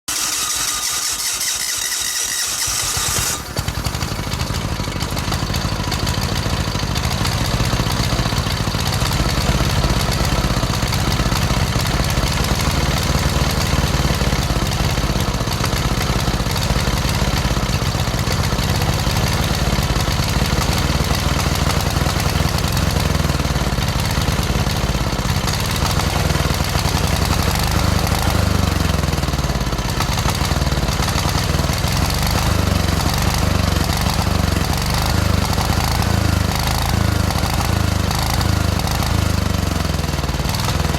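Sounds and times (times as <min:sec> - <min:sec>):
starter motor whining: 0:00.0 - 0:07.2
diesel engine idling: 0:02.4 - 0:40.9.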